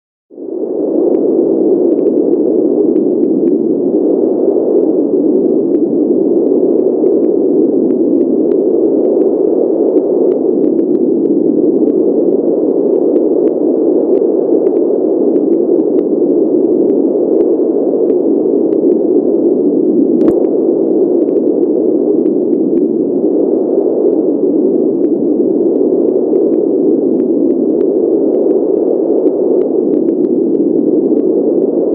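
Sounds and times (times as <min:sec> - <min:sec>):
pink noise: 0:00.4 - 0:31.9
faint ticks: 0:25.0 - 0:31.8.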